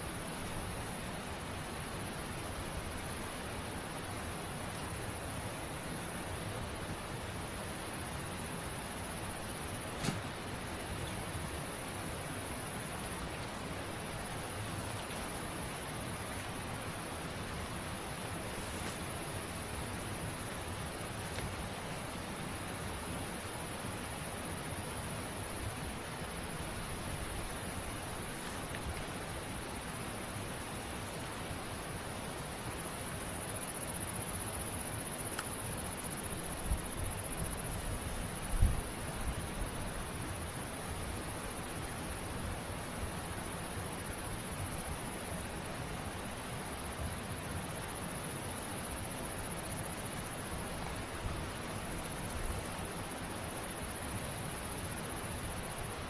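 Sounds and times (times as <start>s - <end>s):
background hiss: 0.0s - 56.0s
insects droning: 0.0s - 56.0s
dull thumps: 10.0s - 10.3s
wind rumble on microphone: 36.7s - 39.8s.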